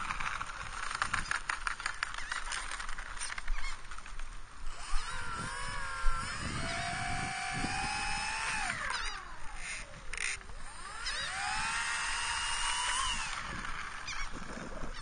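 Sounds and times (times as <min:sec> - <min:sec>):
rustling: 0:00.0 - 0:11.6
electric motors whining: 0:04.6 - 0:15.0.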